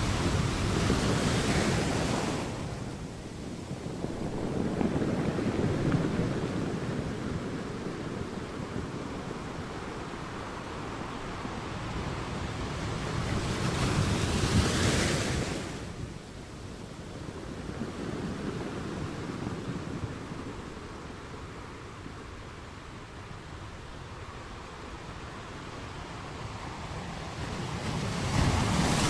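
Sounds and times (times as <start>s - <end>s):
sea waves washing on shore: 0.0s - 29.0s
large wave breaking: 27.7s - 29.0s.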